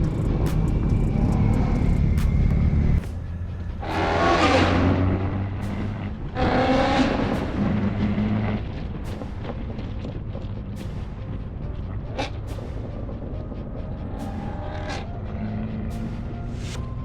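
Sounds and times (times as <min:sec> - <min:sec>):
car engines revving hard: 0:03.8 - 0:09.2.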